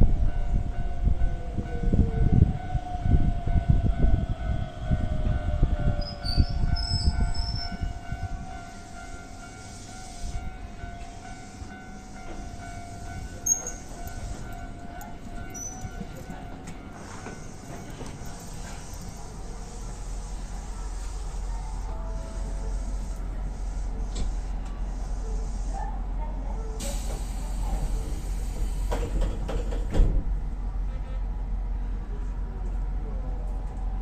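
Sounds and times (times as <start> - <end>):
steady train whine: 0.0 - 34.0
train rumbling on track: 0.0 - 34.0
clatter over rail joints: 28.6 - 30.2.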